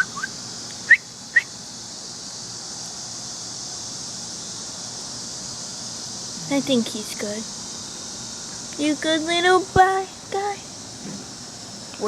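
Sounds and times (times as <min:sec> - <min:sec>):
high rising chirps: 0:00.0 - 0:01.5
steady high hiss: 0:00.0 - 0:12.0.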